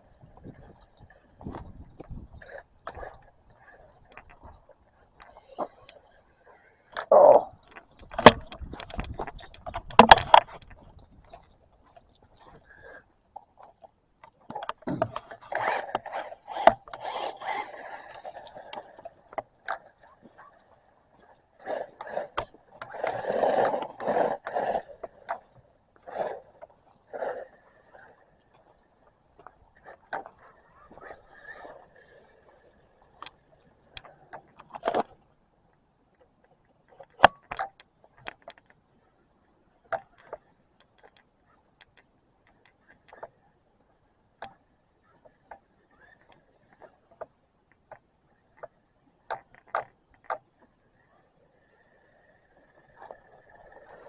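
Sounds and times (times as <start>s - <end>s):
toy truck scraping and clattering: 14.6s - 28.8s, 29.8s - 35.2s.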